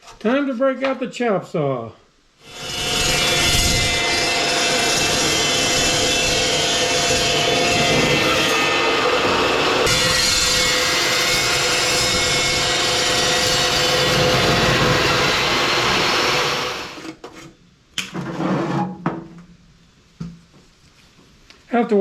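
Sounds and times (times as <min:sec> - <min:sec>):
chop saw cutting steel: 0:02.4 - 0:17.0.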